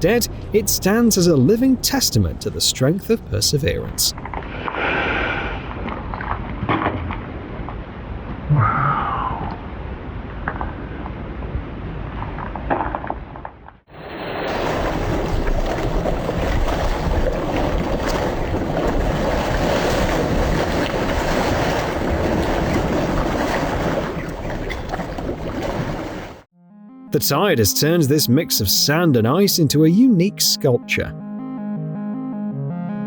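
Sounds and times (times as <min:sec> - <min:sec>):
wind: 0:00.0 - 0:26.5
surf: 0:13.9 - 0:26.5.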